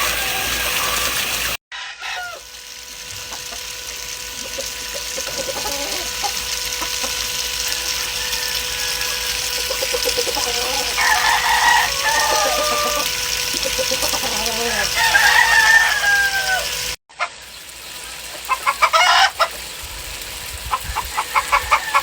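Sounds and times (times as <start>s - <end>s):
rooster crowing: 0.0s - 2.7s, 5.2s - 6.4s, 7.6s - 17.0s, 20.9s - 22.0s
chickens clucking: 3.1s - 17.5s, 18.1s - 19.7s, 20.6s - 22.0s.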